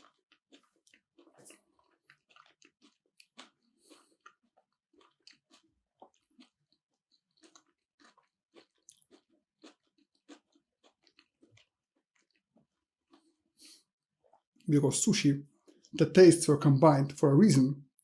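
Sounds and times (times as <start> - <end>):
chewing food: 0.0 - 14.7, 15.5 - 16.0.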